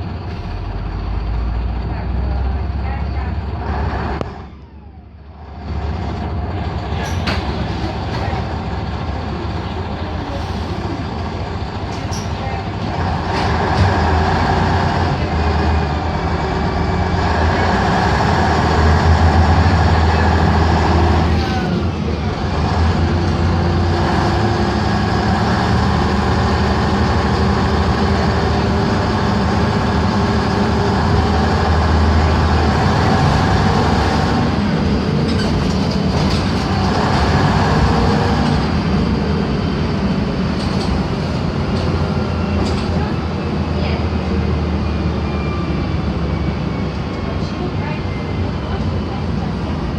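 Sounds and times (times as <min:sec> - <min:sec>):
bus diesel engine running: 0:00.0 - 0:49.9.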